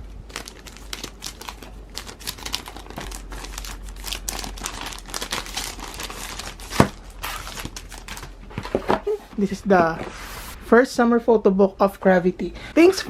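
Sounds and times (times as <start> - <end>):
packaging crinkling and rustling: 0.2 - 9.5.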